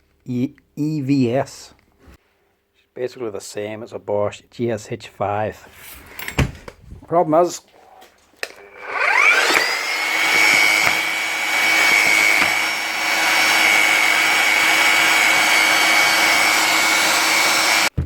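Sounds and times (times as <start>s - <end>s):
electric motor whining: 8.5s - 17.9s.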